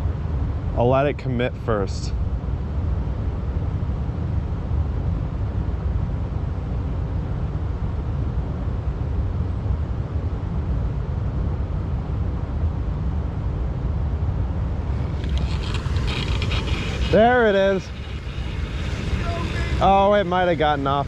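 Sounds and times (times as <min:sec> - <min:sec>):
wind buffeting microphone: 0:13.4 - 0:21.0
water rushing through spillway: 0:14.8 - 0:21.0.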